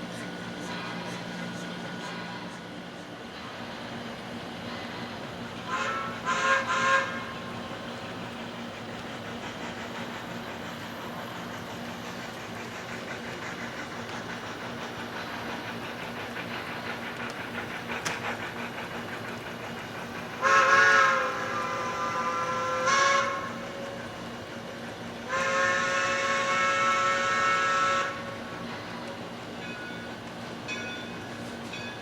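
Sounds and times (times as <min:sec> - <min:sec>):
steam train running: 0:00.0 - 0:32.0
steam locomotive whistle: 0:04.7 - 0:07.6, 0:20.4 - 0:24.1, 0:25.2 - 0:29.0.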